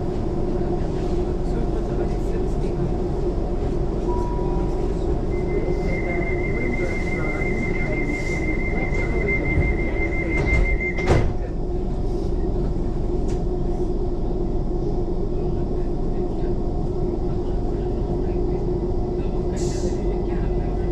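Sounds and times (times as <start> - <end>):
train hum: 0.0 - 20.9
door warning tone beeping: 4.1 - 11.2
train doors shutting with a thud: 8.8 - 11.5.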